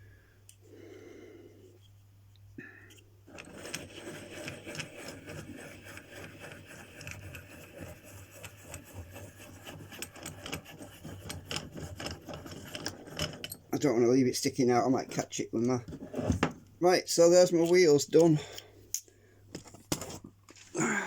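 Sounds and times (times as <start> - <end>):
plastic scraping and rubbing: 3.3 - 13.7.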